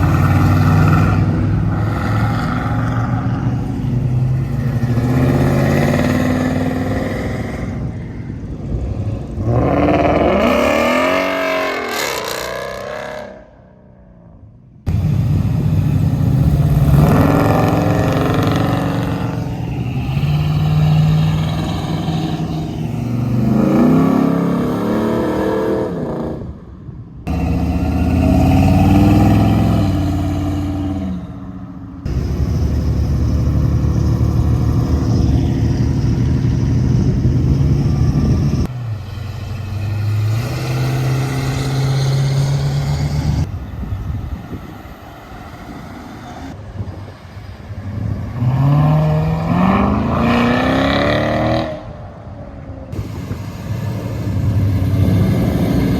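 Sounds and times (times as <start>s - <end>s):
muscle car engines revving: 0.0s - 13.6s, 14.9s - 26.6s, 27.3s - 43.5s, 47.8s - 55.9s.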